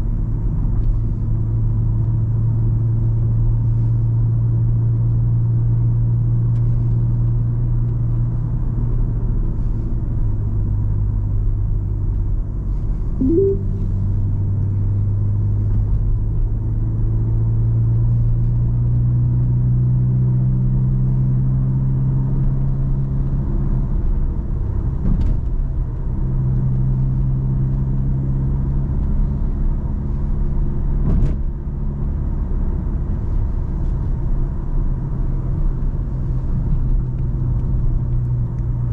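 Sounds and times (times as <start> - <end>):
car engine and tyre noise: 0.0 - 13.2, 13.9 - 38.9
brief rising squeak: 13.2 - 13.9.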